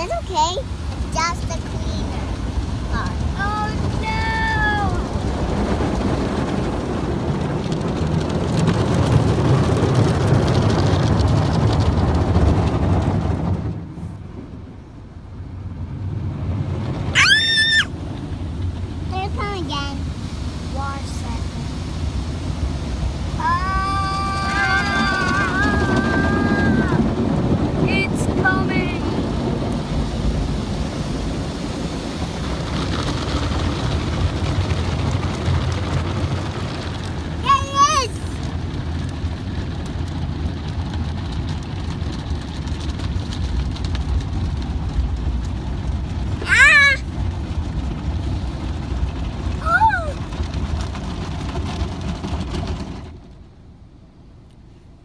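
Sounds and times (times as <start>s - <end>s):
car wash spraying water: 0.0s - 55.0s
car wash hiss: 13.8s - 40.5s
child squealing: 17.2s - 17.9s, 23.4s - 27.0s, 37.4s - 38.3s, 46.4s - 47.0s, 49.6s - 50.2s.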